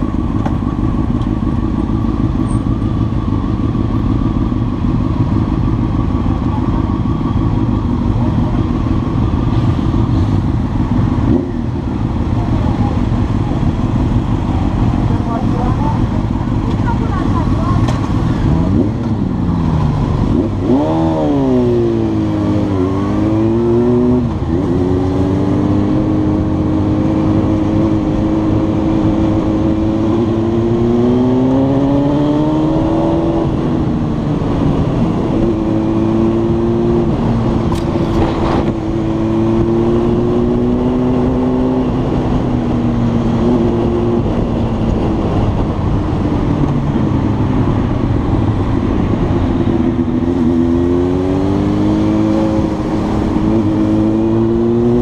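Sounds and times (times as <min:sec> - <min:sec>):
motorcycle engine revving: 0:00.0 - 0:55.0
wind and road noise: 0:00.0 - 0:55.0.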